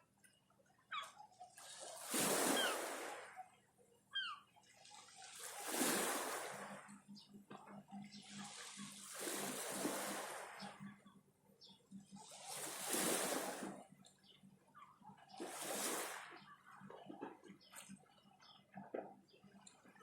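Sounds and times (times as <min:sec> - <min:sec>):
waves washing onto shore: 0:01.6 - 0:03.3, 0:05.1 - 0:07.0, 0:08.1 - 0:10.8, 0:12.3 - 0:13.8, 0:15.4 - 0:16.4.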